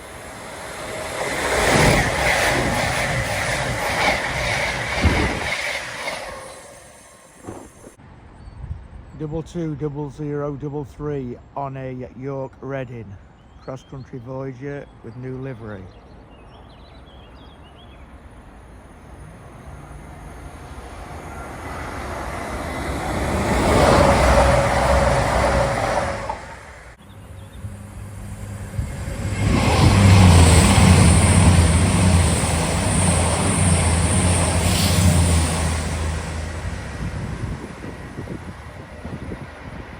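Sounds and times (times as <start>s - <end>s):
diesel train passing: 0.0s - 8.0s, 16.5s - 39.9s
train wheels rushing: 0.0s - 8.0s, 19.2s - 27.0s, 27.6s - 39.9s
diesel engine drone: 18.9s - 39.9s.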